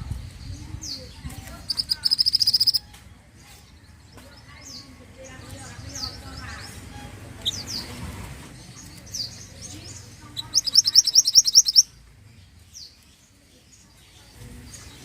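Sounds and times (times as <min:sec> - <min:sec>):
songbird whistled notes and trill: 0:01.7 - 0:02.9, 0:10.4 - 0:11.9.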